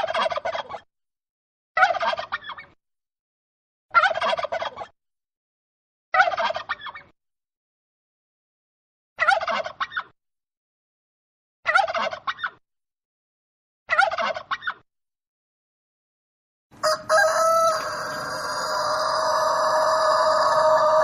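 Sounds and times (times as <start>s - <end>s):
bird gobbling rattle call: 16.8s - 21.0s.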